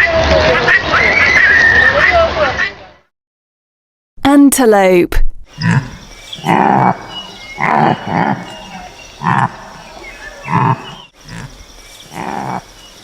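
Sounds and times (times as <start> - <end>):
antelope calling: 5.5 - 13.0.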